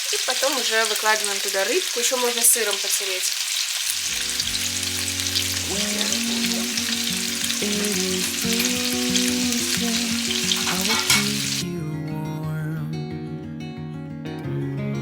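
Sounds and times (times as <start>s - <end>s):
vegetables sizzling in a frying pan: 0.0s - 11.6s
guitar music: 3.9s - 15.0s
utensil scraping a pan: 9.9s - 11.6s.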